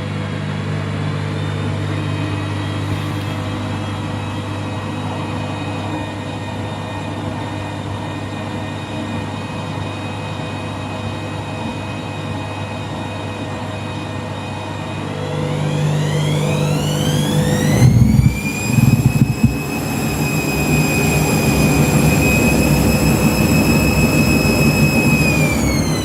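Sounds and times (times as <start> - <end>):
washing machine motor whining: 14.6 - 26.0.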